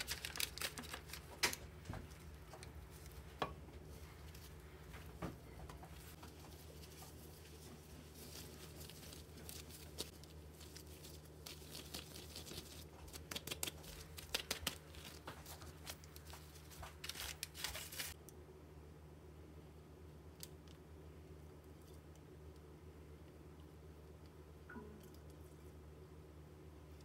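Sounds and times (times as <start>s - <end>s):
gloves rustling on paper: 0.0s - 18.2s
faint low hum: 0.0s - 27.0s.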